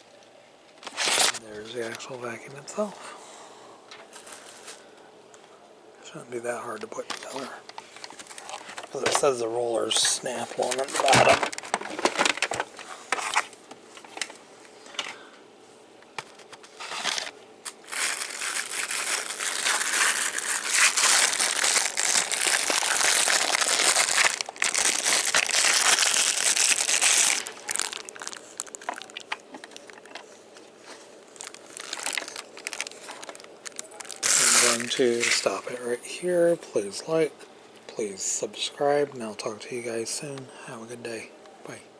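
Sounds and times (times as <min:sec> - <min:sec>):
plastic packaging crinkling: 0:00.8 - 0:01.8, 0:06.9 - 0:14.4, 0:16.2 - 0:35.9.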